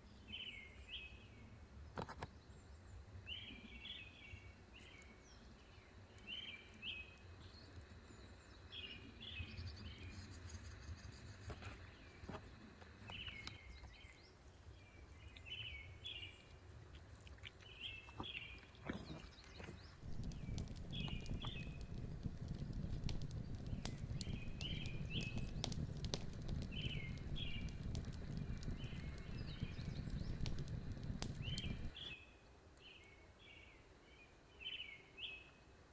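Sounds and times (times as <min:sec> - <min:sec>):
birds chirping faintly: 0:00.0 - 0:35.8
steady low rumble: 0:19.8 - 0:32.1
sharp clicks: 0:20.0 - 0:32.0.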